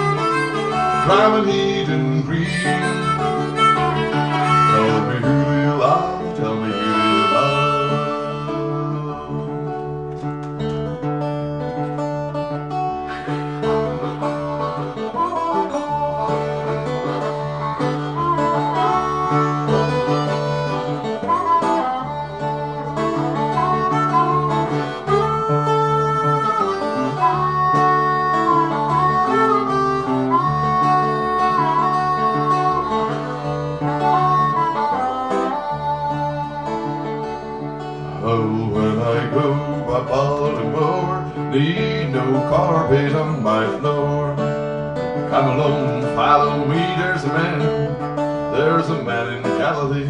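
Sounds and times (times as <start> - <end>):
acoustic guitar picking: 0.0 - 50.0
harmonica melody: 0.0 - 50.0.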